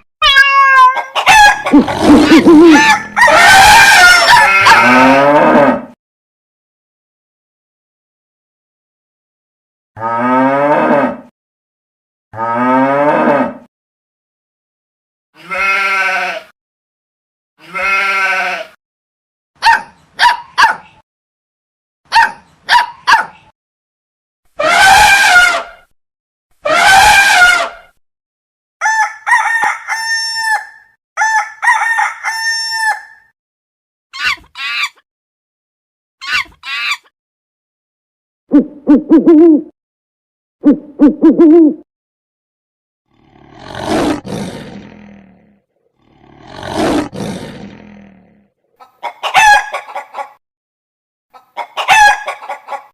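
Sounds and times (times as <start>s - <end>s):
animal bleating: 0.2s - 5.7s, 15.4s - 16.6s, 17.6s - 18.8s
short fowl-like calls: 0.6s - 1.8s.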